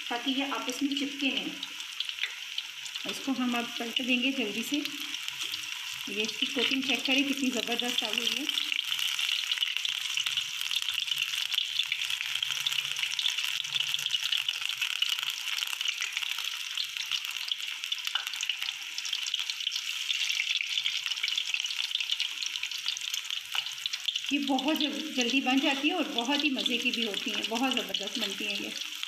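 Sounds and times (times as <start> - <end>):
deep-frying sizzle in hot oil: 0.0 - 29.0.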